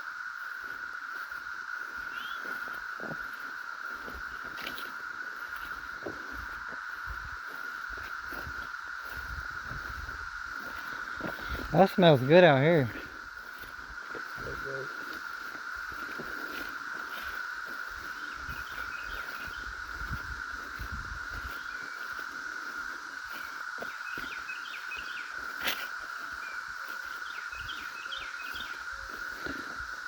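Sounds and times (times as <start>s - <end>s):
cicadas droning: 0.0s - 30.0s
bird chirping: 2.1s - 2.5s.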